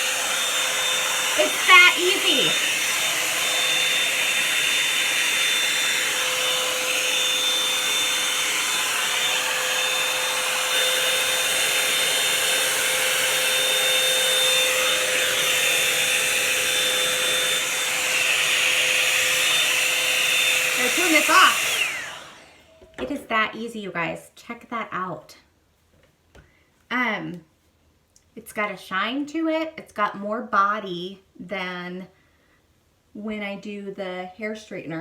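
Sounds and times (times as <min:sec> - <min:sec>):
hot-air brush blowing air: 0:00.0 - 0:22.7.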